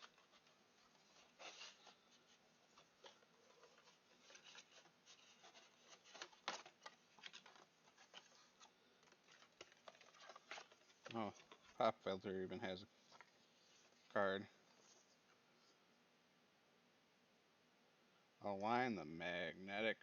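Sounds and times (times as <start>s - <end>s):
cardboard packaging rustling: 0.0s - 15.3s.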